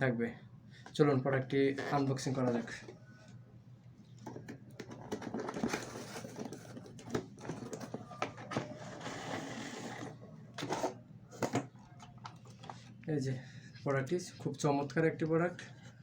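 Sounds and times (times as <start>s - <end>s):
packaging rustling and clicking: 4.4s - 10.0s.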